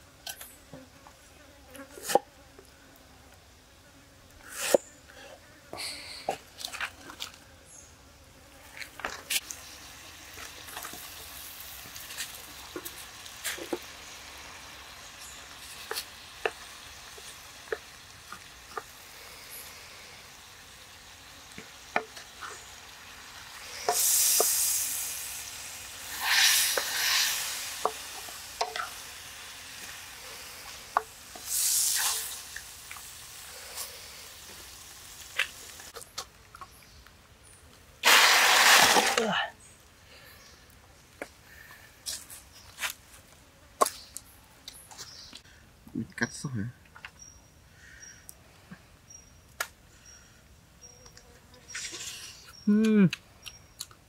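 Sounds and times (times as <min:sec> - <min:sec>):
food sizzling in a wok: 0:09.4 - 0:36.0, 0:38.0 - 0:39.4.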